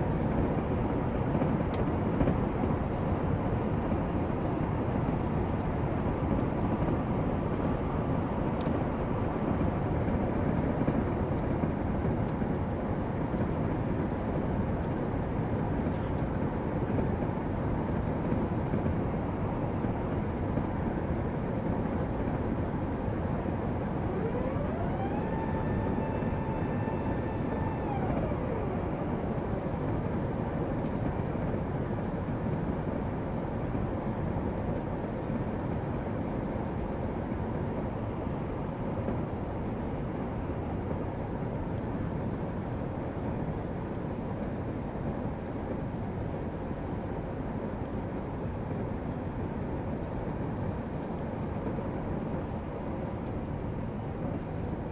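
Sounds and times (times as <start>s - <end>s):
engine whine: 0.0s - 33.8s
airliner engine noise: 0.0s - 54.9s.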